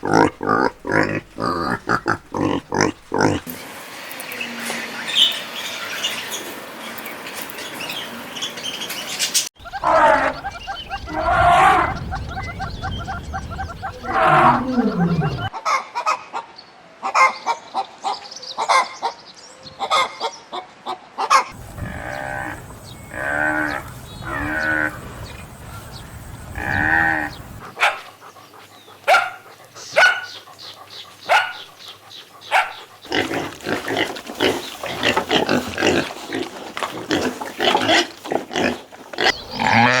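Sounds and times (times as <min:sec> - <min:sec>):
farm animals calling: 0:00.0 - 0:03.6, 0:04.3 - 0:16.4, 0:21.3 - 0:40.0.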